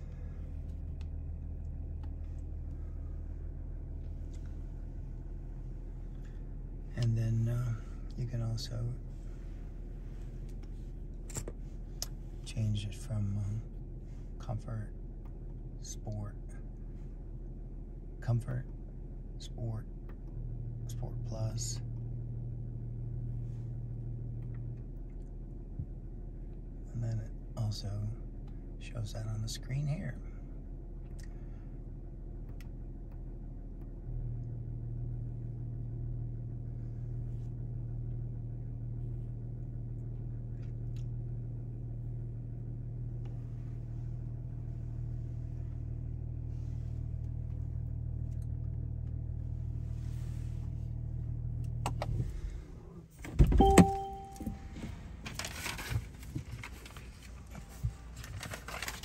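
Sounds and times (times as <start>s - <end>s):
car engine idling: 0.0s - 59.0s
loud clunk with ringing tone: 53.4s - 54.9s.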